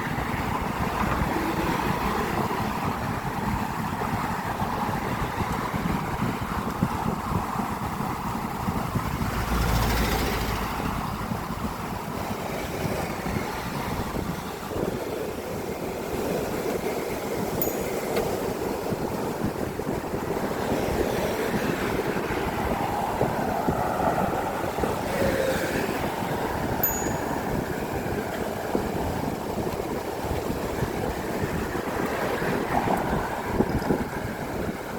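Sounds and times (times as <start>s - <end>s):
road traffic rush: 0.0s - 34.9s
vehicle passing with low rumble: 8.8s - 12.4s.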